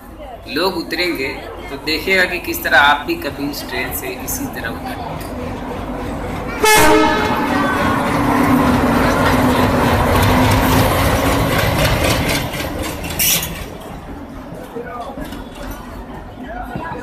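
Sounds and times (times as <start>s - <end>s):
diesel locomotive engine drone: 0.0s - 17.0s
wheels rumbling on rails: 0.0s - 17.0s
train horn blast: 6.5s - 8.8s.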